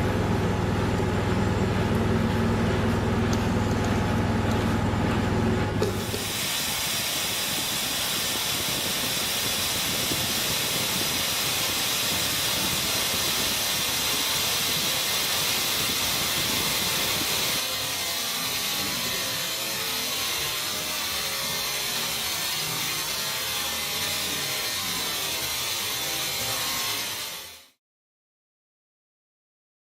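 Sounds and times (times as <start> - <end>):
steady high hiss: 6.0 - 17.6.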